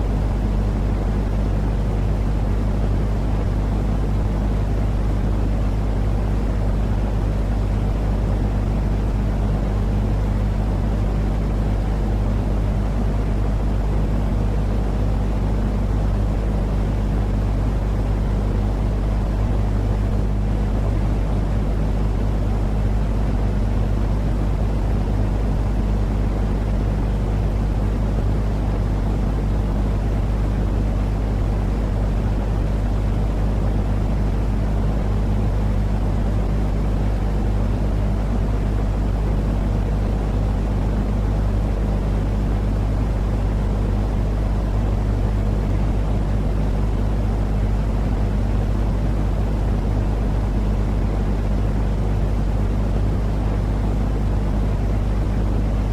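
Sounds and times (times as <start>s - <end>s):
steady low hum: 0.0s - 55.9s
white noise rumbling hiss: 0.0s - 55.9s.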